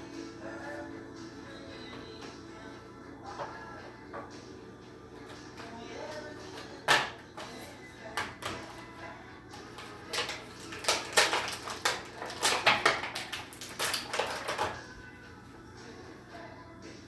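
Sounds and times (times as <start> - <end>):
packaging crackling and clicking: 9.6 - 14.8.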